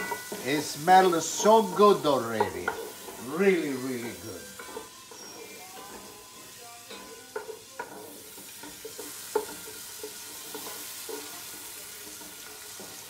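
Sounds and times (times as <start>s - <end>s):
onion sizzling in oil: 0.0s - 13.0s
spoon scraping a pot: 4.0s - 13.0s.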